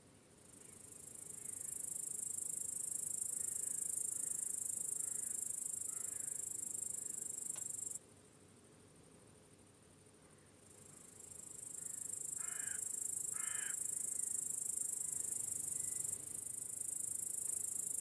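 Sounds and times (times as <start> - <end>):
faint crickets chirping: 0.0 - 18.0
high-pitched insect trill: 0.8 - 8.0, 11.0 - 18.0.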